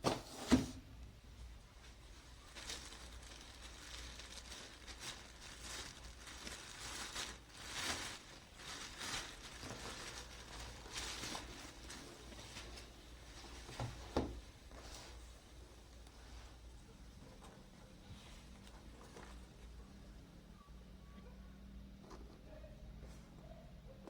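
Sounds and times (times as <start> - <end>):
packaging rustling and tearing: 1.9 - 15.2.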